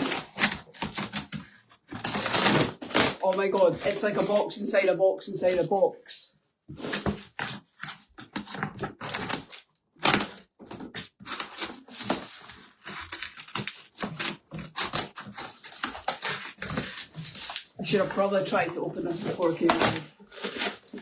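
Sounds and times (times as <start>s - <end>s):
cardboard box being torn open: 0.0s - 3.3s, 6.9s - 17.8s, 19.1s - 21.0s.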